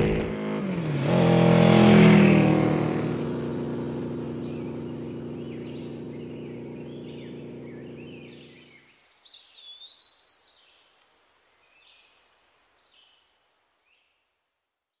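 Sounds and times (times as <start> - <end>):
faint bird chirps: 4.3 - 10.9.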